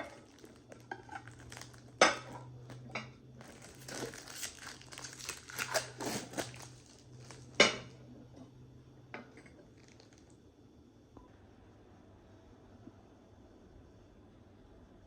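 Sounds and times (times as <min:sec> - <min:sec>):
objects crinkling and rustling: 0:00.0 - 0:08.0, 0:09.5 - 0:10.4
low steady hum: 0:00.0 - 0:15.0.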